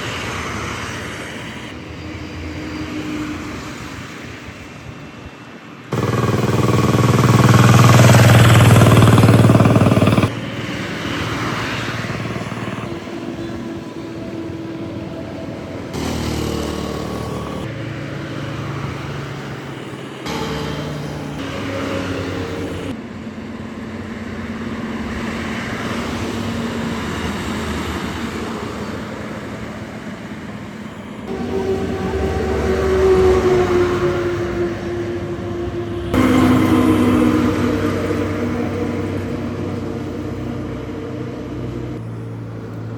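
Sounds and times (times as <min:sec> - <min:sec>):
road noise: 0:00.0 - 0:42.9
vehicle engines running: 0:00.0 - 0:42.9.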